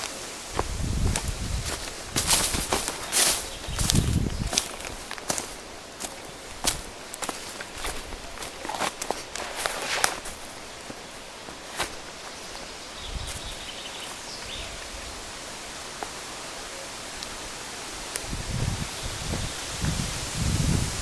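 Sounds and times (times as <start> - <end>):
crunching footsteps: 0.0 - 16.2
rustling air and leaves: 0.0 - 21.0.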